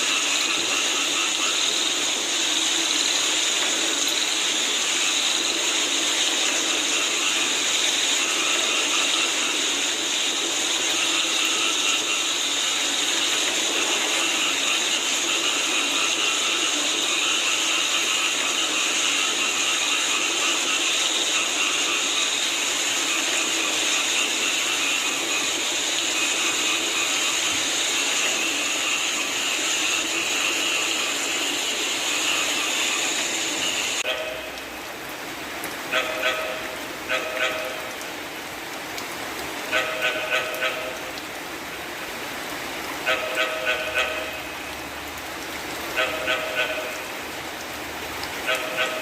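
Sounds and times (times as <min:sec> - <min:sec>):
frogs croaking: 0:00.0 - 0:49.0
rain pattering: 0:00.0 - 0:49.0.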